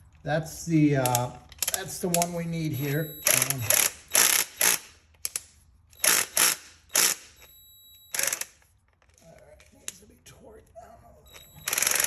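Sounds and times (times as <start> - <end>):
hand ratchet clicking: 1.0 - 2.4, 3.2 - 7.2, 8.1 - 8.5, 11.4 - 12.0.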